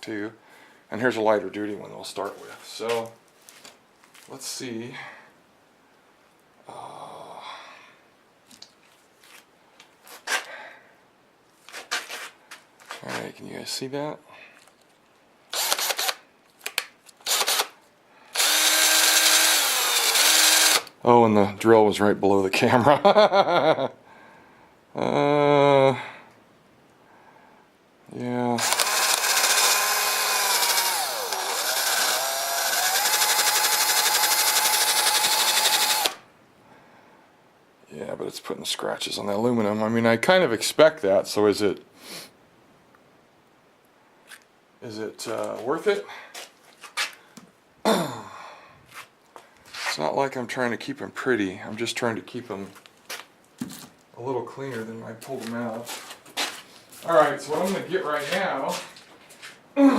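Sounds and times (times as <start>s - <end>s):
electric drill whining: 15.5s - 16.2s, 17.2s - 20.9s, 28.6s - 36.2s.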